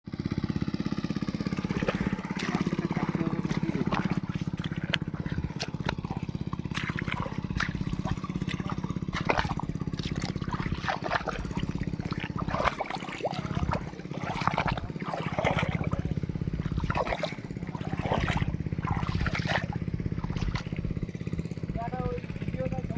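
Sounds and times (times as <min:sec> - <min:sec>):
mud and water splashing: 0:00.1 - 0:22.5
tractor diesel engine running: 0:00.1 - 0:22.9.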